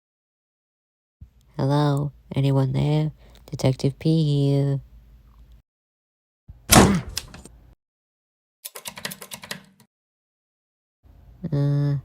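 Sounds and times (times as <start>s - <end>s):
door banging shut: 6.7s - 7.5s
sharp clicks: 6.7s - 7.5s.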